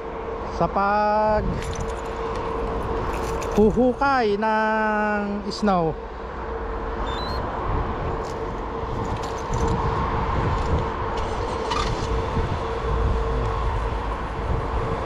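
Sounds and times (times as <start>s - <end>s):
steady mechanical hum: 0.0s - 15.0s
low rumble: 6.5s - 15.0s.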